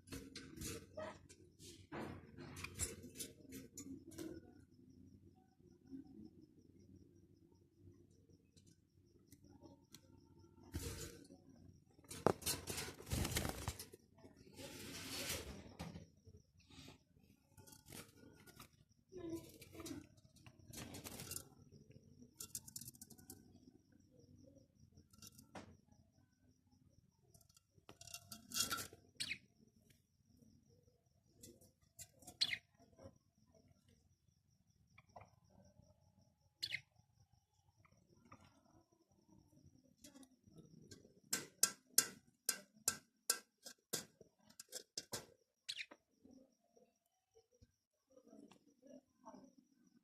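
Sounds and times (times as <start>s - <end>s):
sparrows clicking and rattling: 0.0s - 1.6s, 2.3s - 4.9s, 16.7s - 26.0s, 26.8s - 33.7s, 34.9s - 38.8s, 40.0s - 46.4s.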